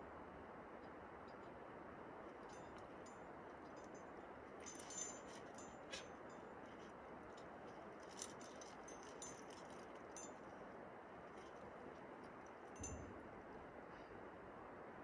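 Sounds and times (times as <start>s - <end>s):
climbing gear jangling: 2.3s - 13.2s.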